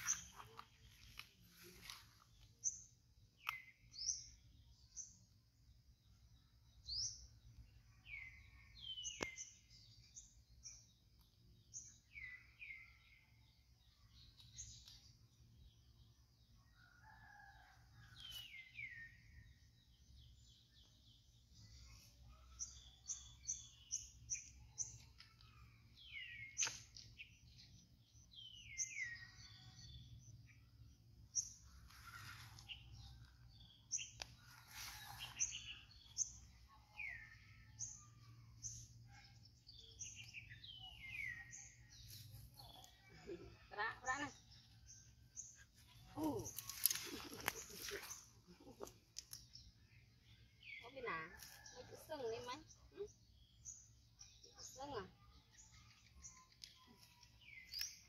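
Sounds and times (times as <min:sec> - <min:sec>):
birds chirping: 0:20.2 - 0:58.0.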